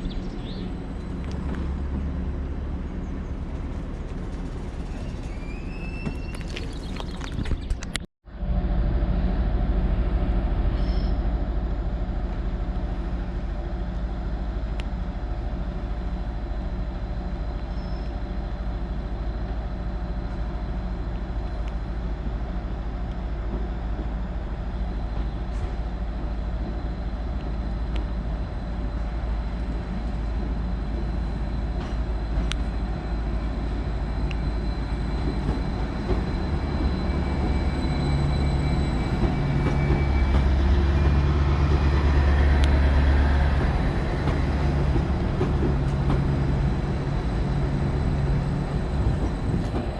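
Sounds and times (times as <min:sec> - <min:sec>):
diesel engine low hum: 0:00.0 - 0:49.9.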